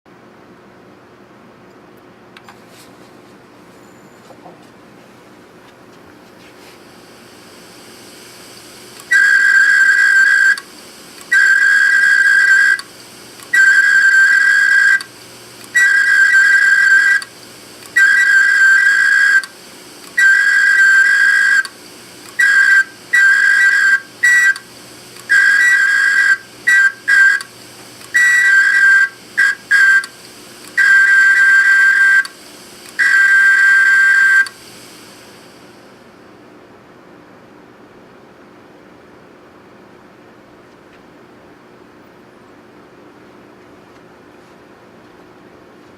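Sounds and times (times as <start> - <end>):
high squeal of scratched disk: 15.7 - 17.3, 17.9 - 19.5, 20.2 - 21.7, 22.4 - 24.6, 25.3 - 27.5, 28.1 - 30.2.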